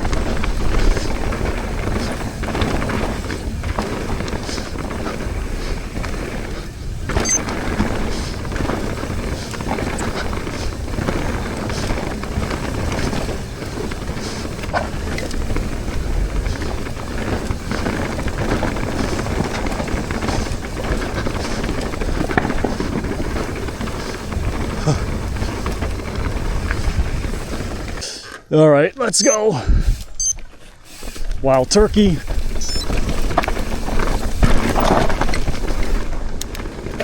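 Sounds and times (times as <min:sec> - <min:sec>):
wind rush over microphone: 0:00.0 - 0:28.0, 0:29.6 - 0:30.2
bike knocking and rattling: 0:00.0 - 0:28.5, 0:29.8 - 0:37.0
bike tyre noise: 0:00.0 - 0:37.0.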